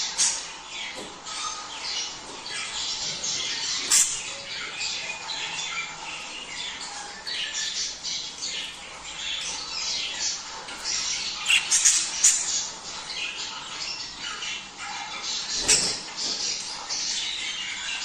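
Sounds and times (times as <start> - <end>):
budgerigars chattering and warbling: 0.0 - 18.0
sharp squawks: 11.3 - 12.6.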